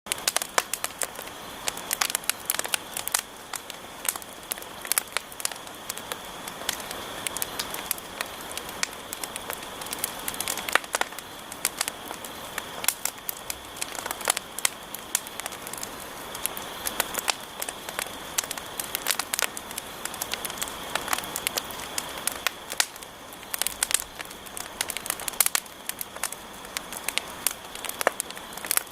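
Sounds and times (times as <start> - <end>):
campfire crackling and popping: 0.1 - 28.9.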